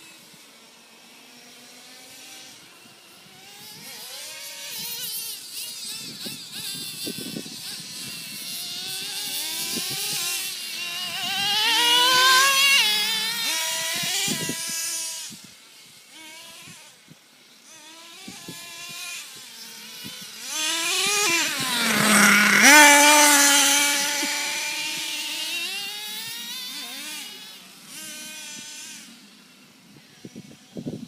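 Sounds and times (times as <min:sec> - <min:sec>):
toy truck motor whining: 0:03.4 - 0:15.4, 0:17.6 - 0:29.1.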